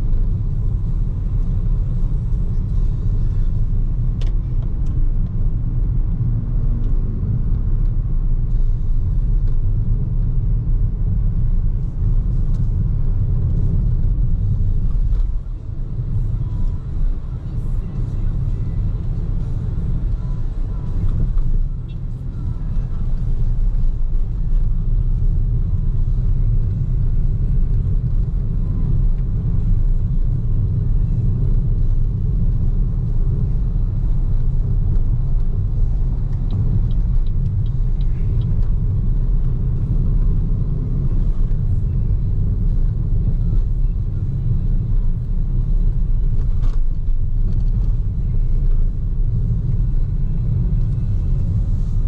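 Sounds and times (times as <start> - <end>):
car tyre and wind noise: 0.0 - 52.0.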